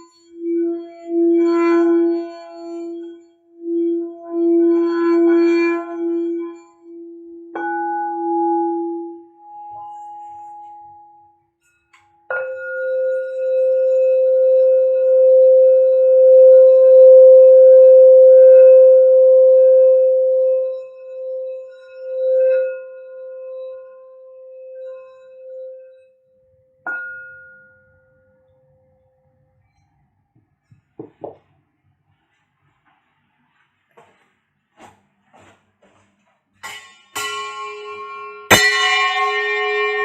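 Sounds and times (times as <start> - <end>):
singing bowl ringing: 0.0 - 29.0, 36.7 - 40.0
singing bowl strike: 36.7 - 40.0.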